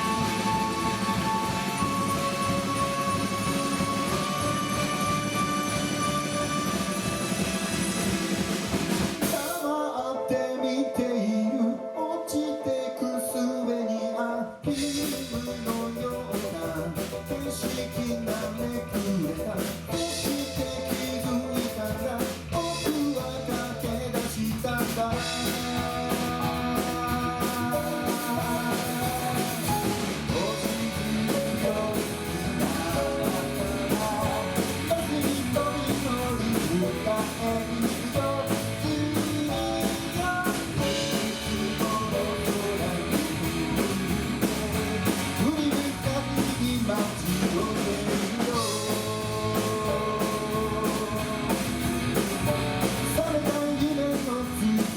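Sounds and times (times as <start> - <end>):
person singing: 0.0 - 7.6, 9.2 - 54.9
live rock band playing: 0.0 - 11.2, 14.6 - 54.9.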